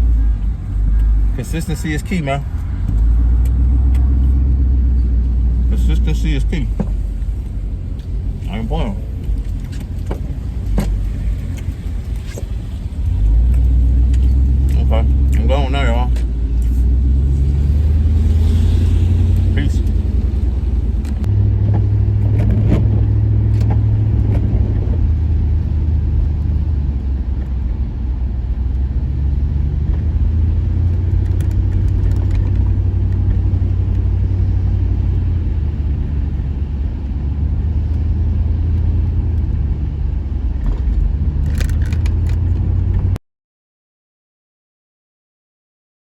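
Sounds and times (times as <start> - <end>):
car engine and road rumble: 0.0 - 43.2.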